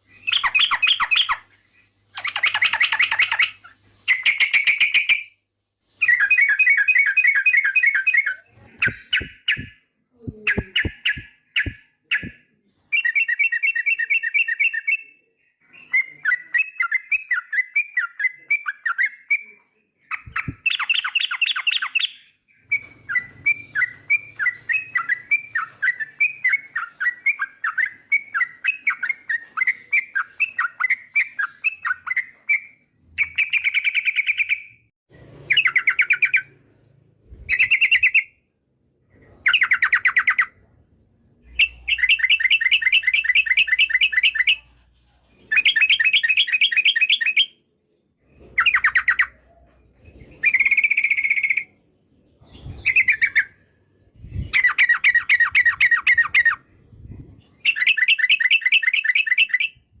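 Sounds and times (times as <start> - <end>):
bulbul chattering song: 0.0 - 5.4, 6.0 - 15.1, 41.5 - 44.8.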